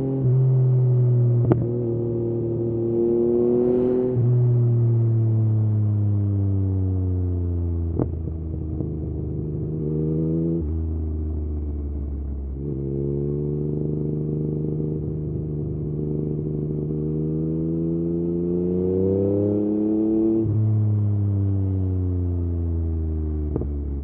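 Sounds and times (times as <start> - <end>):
motorcycle engine revving: 0.0 - 6.1, 7.9 - 22.0.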